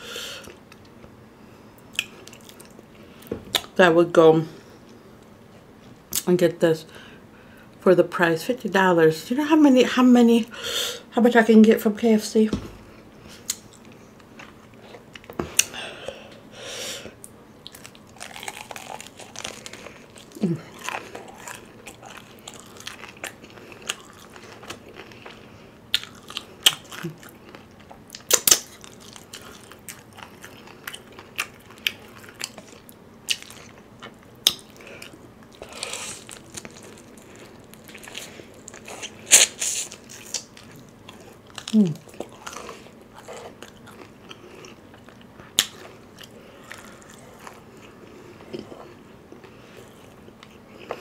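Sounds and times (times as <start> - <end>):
crunching fried chicken: 17.7 - 48.0.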